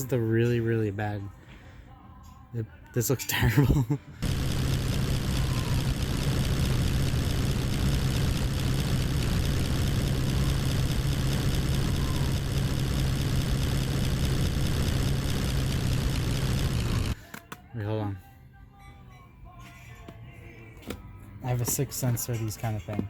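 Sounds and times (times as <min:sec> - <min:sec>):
heavy engine running: 0:04.2 - 0:17.2.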